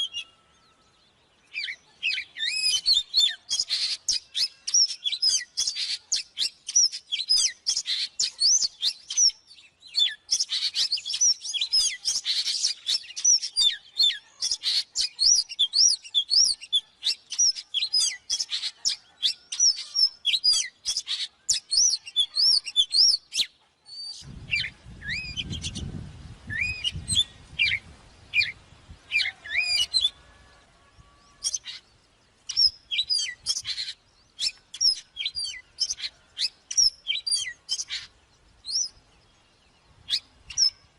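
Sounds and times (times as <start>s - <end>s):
bird singing whistled phrases: 1.5s - 25.9s, 26.5s - 27.8s, 40.1s - 40.9s.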